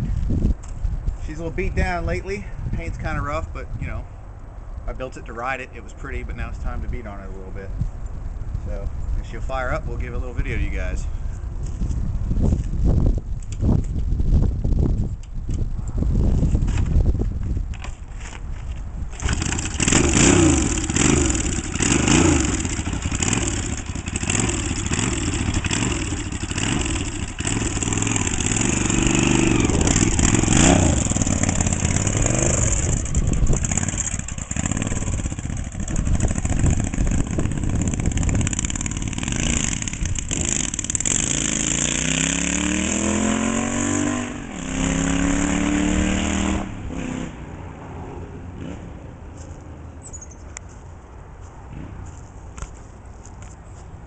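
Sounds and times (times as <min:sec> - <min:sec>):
motorcycle pulling away: 0:19.1 - 0:47.5
motorcycle engine revving: 0:19.1 - 0:47.8.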